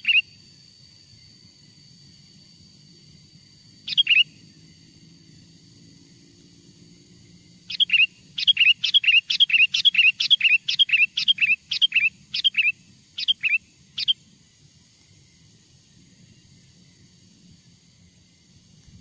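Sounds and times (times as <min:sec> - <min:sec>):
bulbul chirping: 0:03.9 - 0:04.4, 0:07.7 - 0:14.2.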